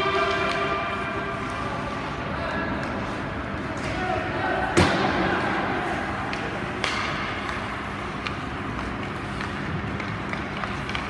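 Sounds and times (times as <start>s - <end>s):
skating and arena noise: 0.0s - 11.0s
sticks and puck clicking: 6.3s - 11.0s.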